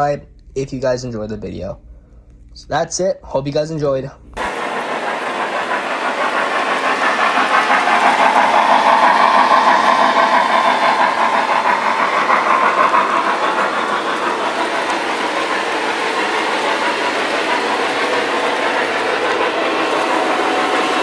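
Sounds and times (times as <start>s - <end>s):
train running: 4.3s - 21.0s.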